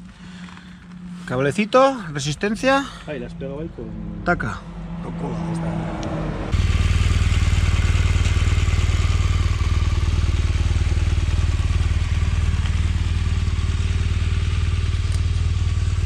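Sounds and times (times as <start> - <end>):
motorcycle engine idling: 6.6 - 16.0.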